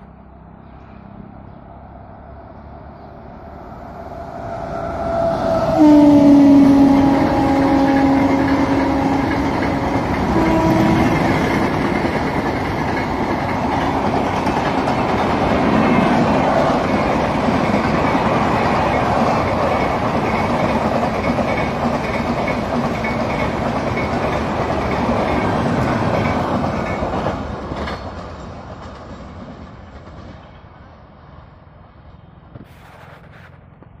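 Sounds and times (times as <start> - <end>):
train wheels rumbling on rails: 0.7 - 34.0
train horn: 4.2 - 11.9.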